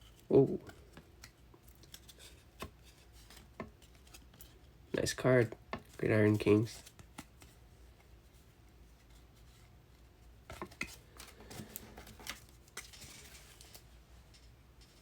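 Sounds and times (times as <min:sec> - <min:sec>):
trading cards clicking and rustling: 0:00.0 - 0:07.6, 0:10.5 - 0:15.0.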